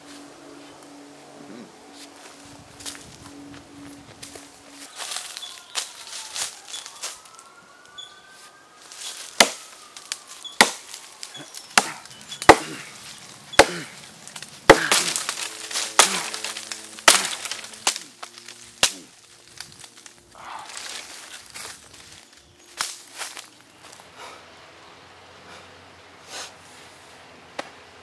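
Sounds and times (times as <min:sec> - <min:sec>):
wood being chopped: 0:09.0 - 0:20.1.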